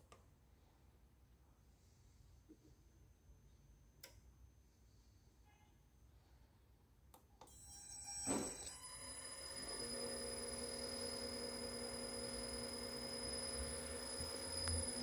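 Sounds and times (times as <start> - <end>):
electrical whine with high tone: 7.6 - 15.0.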